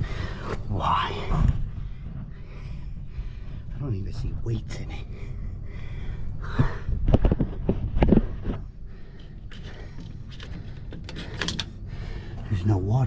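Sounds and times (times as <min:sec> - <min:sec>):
heavy breath of effort: 0:05.0 - 0:07.1, 0:08.2 - 0:12.5.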